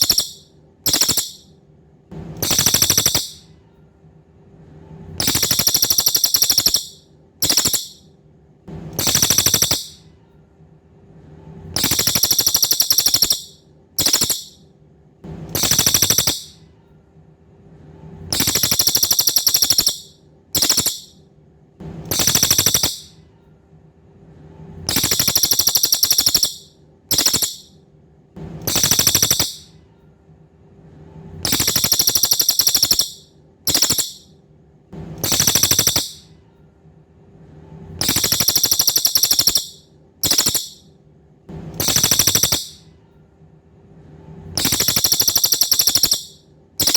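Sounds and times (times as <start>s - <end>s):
songbird buzzy trill: 0.0s - 1.5s, 2.4s - 3.5s, 5.2s - 8.1s, 9.0s - 10.0s, 11.8s - 14.6s, 15.5s - 16.6s, 18.3s - 21.2s, 22.1s - 23.2s, 24.9s - 27.7s, 28.6s - 29.8s, 31.4s - 34.3s, 35.2s - 36.3s, 38.0s - 40.9s, 41.8s - 42.9s, 44.6s - 46.9s
faint steady hum: 0.0s - 46.9s.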